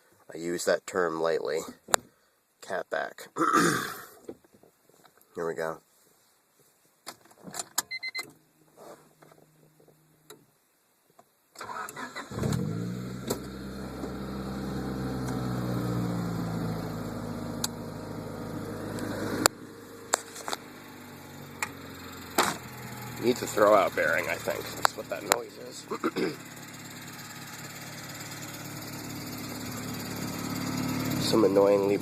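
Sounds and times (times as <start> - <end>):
engine cranking: 11.6 - 14.2
car engine idling: 12.3 - 32.0.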